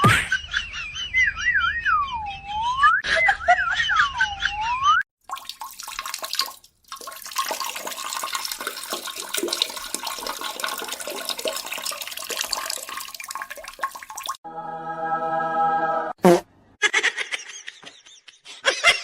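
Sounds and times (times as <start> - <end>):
rushing splashing water: 5.3 - 14.4.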